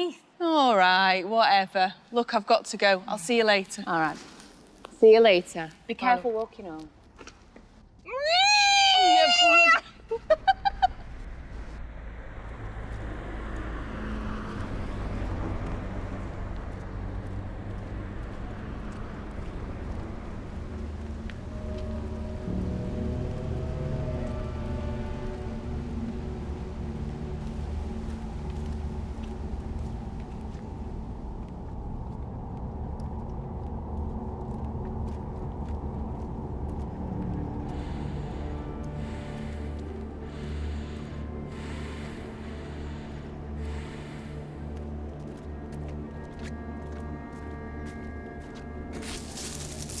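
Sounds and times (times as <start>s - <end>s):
distant road traffic rumble: 11.0s - 32.4s.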